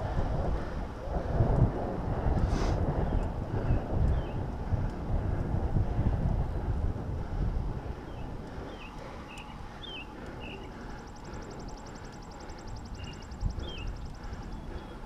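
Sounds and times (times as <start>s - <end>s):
wind rumble on microphone: 0.0s - 15.0s
birds chirping: 3.0s - 4.4s, 7.9s - 15.0s.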